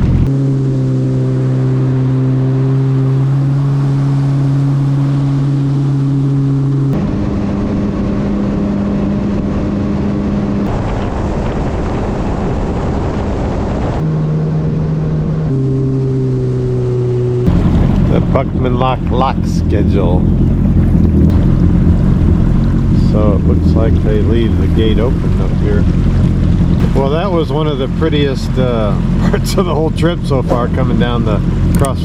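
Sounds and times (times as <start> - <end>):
personal watercraft engine: 0.0 - 32.0
rush of water and wind: 7.0 - 15.5, 23.1 - 32.0.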